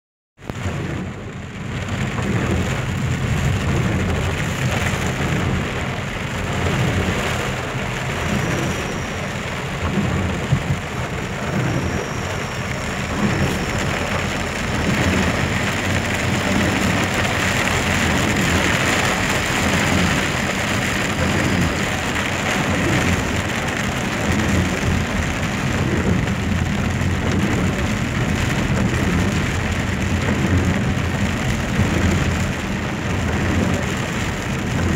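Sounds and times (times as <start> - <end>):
heavy rain pouring: 0.4 - 34.9
low rumble: 0.5 - 34.9.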